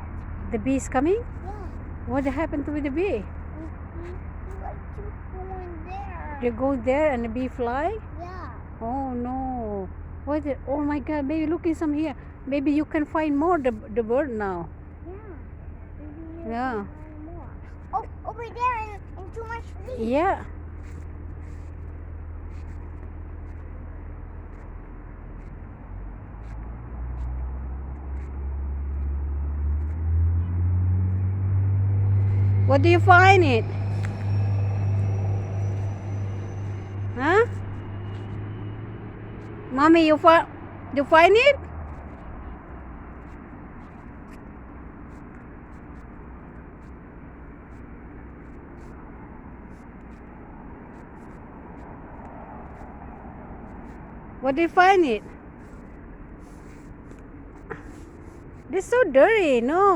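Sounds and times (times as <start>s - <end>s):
outdoor background rumble: 0.0s - 59.9s
vehicle engine humming: 0.0s - 59.9s.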